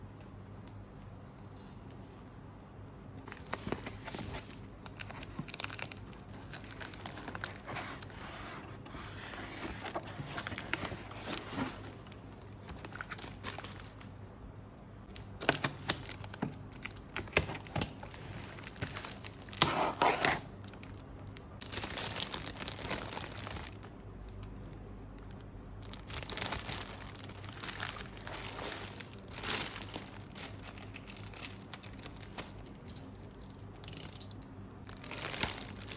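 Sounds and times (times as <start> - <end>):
packing material tearing and rustling: 3.3 - 14.1, 15.1 - 20.9, 21.6 - 23.9, 25.2 - 32.9, 34.9 - 35.9.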